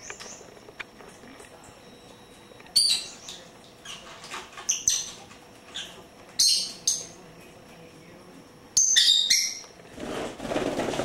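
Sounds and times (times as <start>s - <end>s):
birds chirping and squeaking: 0.0s - 0.7s, 2.7s - 7.2s, 8.8s - 9.8s.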